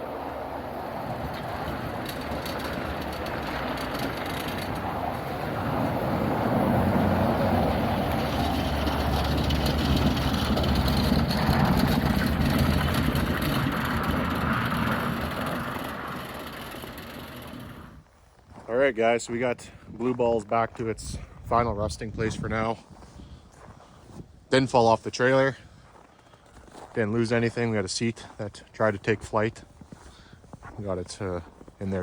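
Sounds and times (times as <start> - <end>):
vehicle engine and road noise: 0.0 - 18.1.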